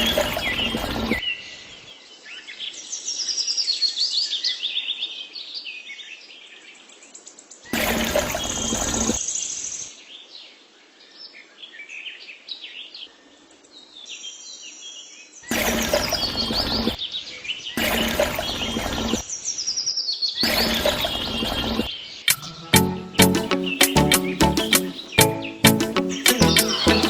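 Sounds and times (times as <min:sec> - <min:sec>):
small birds chirping: 0:19.3 - 0:27.0.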